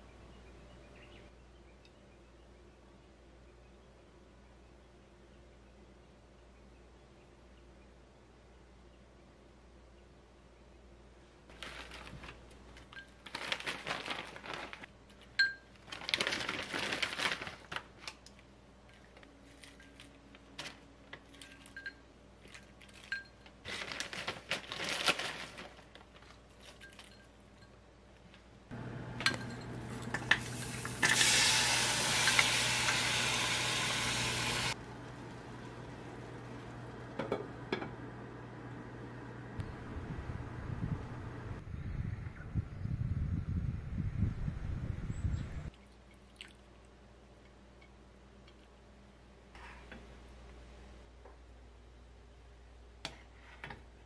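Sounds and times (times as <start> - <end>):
low steady hum: 25.6 - 54.0
dishes clinking: 29.2 - 31.2
vegetables sizzling in a frying pan: 30.4 - 34.8.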